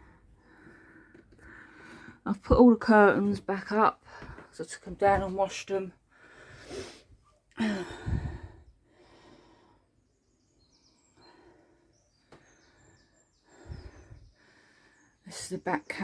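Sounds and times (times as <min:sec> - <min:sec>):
person sighing: 0:07.6 - 0:08.6.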